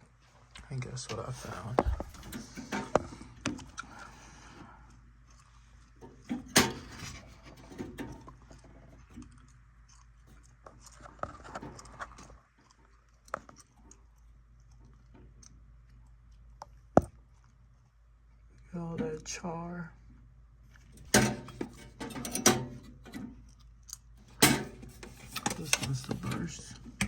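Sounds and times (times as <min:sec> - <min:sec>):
parts and tools rattling: 0:01.1 - 0:04.2, 0:06.0 - 0:09.3, 0:20.8 - 0:23.5, 0:24.2 - 0:27.0.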